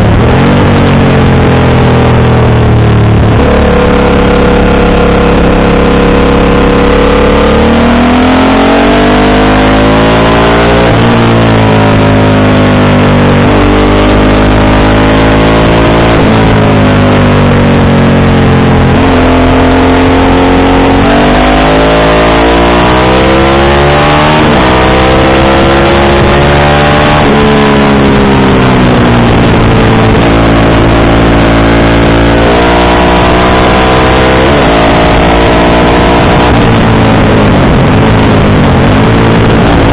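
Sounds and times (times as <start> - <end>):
steady rushing noise: 0.0 - 12.2, 25.6 - 39.9
motorcycle engine revving: 0.0 - 39.9.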